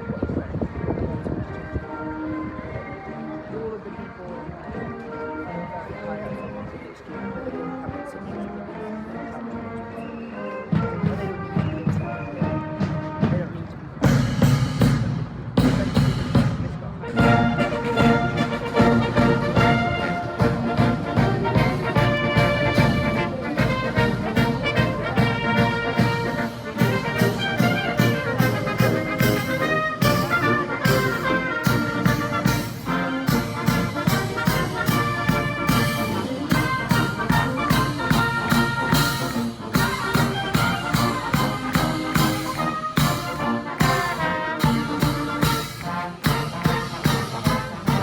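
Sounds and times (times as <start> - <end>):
brass melody: 10.5 - 48.0
steady drum beat: 14.0 - 48.0.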